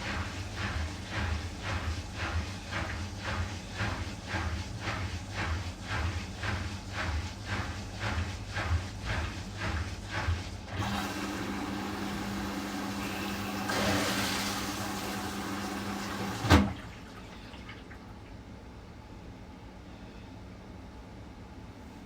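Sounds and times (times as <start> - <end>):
washing machine hum: 0.0 - 19.8
washing machine rhythmic pulsing: 0.0 - 19.8
water rushing in: 10.8 - 18.2
washing machine click: 16.0 - 16.8.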